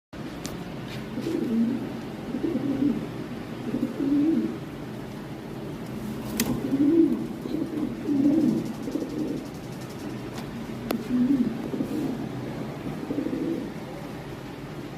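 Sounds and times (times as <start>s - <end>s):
pigeons cooing: 1.1s - 4.6s, 6.1s - 14.0s.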